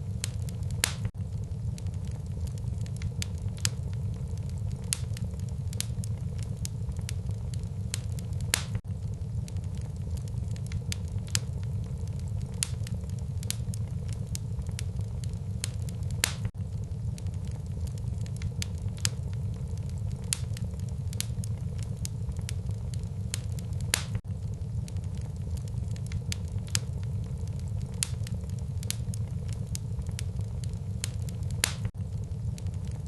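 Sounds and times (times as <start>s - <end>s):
low rumble of fire: 0.0s - 33.0s
wood fire crackling: 0.0s - 33.0s
loud fire pops: 0.1s - 33.0s.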